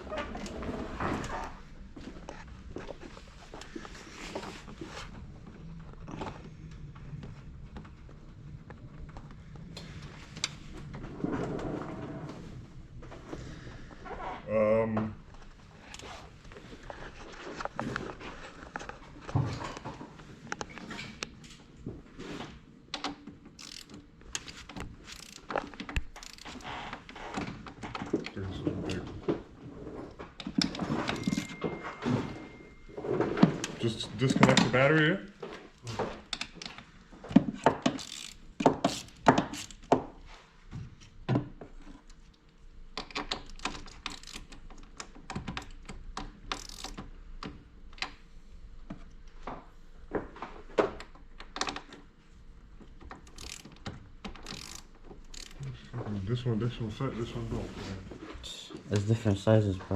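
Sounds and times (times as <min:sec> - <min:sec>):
hand tools and car parts rattling: 0:23.0 - 0:29.4, 0:30.0 - 0:40.2, 0:43.0 - 0:47.1, 0:52.8 - 0:55.8
socket wrench ratcheting: 0:23.6 - 0:26.7, 0:31.1 - 0:31.6, 0:37.7 - 0:39.9, 0:43.0 - 0:44.7, 0:46.5 - 0:47.1, 0:53.2 - 0:55.6.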